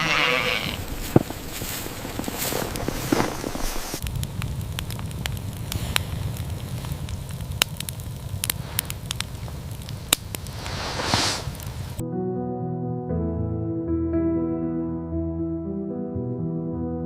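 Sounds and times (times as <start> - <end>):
wood fire crackling: 0.0 - 12.0
steady low rumble: 0.8 - 12.0
sharp pops: 2.7 - 12.0
brief whoosh: 10.5 - 11.7.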